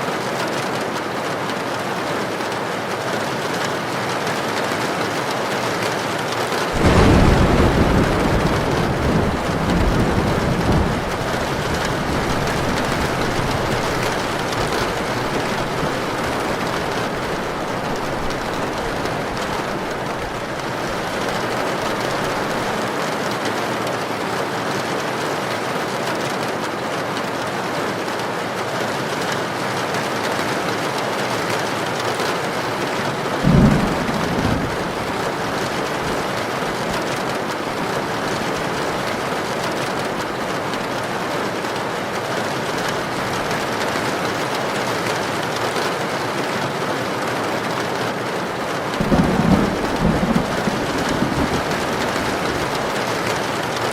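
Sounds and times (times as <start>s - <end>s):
heavy rain falling: 0.0s - 53.9s
low rumbles of thunder: 6.8s - 22.8s, 33.4s - 39.2s, 49.0s - 53.9s.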